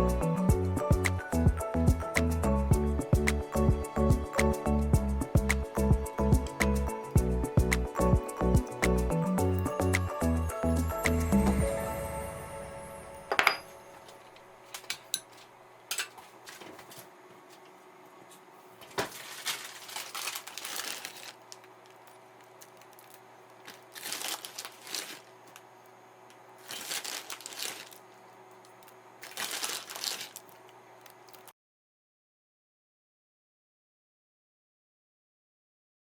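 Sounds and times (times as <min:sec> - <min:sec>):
paper crinkling and rustling: 0:14.6 - 0:17.7, 0:18.3 - 0:25.8, 0:26.6 - 0:31.5.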